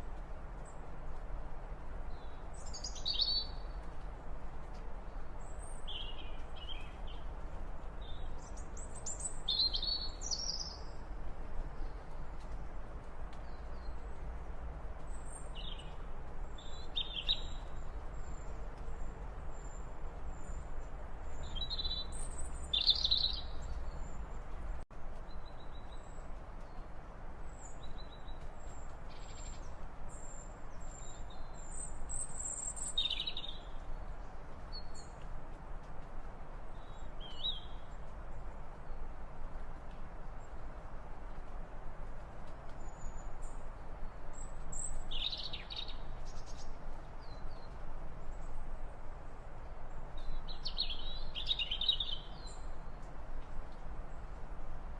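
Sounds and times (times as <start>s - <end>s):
steady outdoor hiss: 0.0s - 54.9s.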